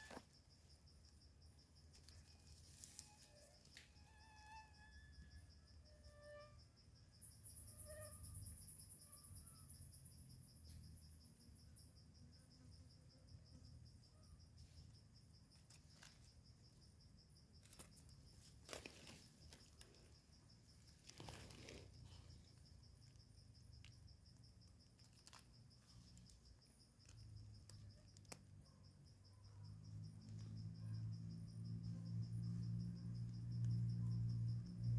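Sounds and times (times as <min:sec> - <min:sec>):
insect trilling: 0:00.0 - 0:12.0, 0:15.5 - 0:34.9
crackling rustle of leaves: 0:01.8 - 0:03.9, 0:17.6 - 0:28.6.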